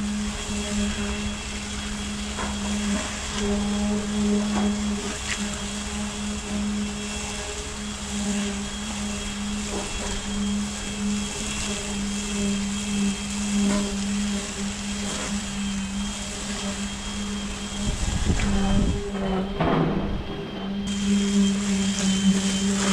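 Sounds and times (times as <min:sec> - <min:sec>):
faint high whine: 0:00.0 - 0:22.9
diesel engine running: 0:20.1 - 0:22.9.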